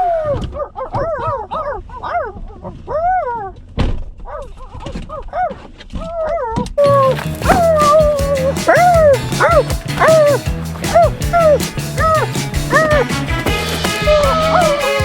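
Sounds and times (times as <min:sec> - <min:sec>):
dog whining and yipping: 0:00.0 - 0:03.6, 0:04.3 - 0:13.2, 0:14.1 - 0:15.0
thump: 0:03.8 - 0:04.1.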